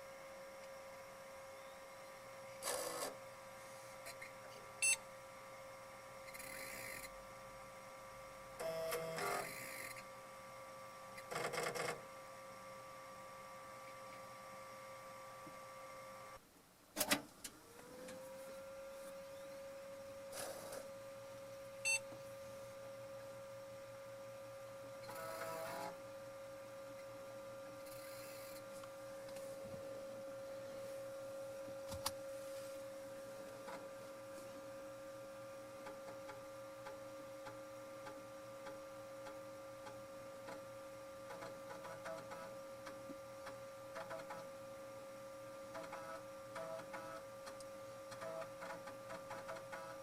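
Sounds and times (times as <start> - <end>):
floppy disk drive whine: 0.0 - 16.4, 17.0 - 50.0
floppy drive buzzes and ticks: 0.0 - 16.4, 20.1 - 32.3, 33.0 - 50.0.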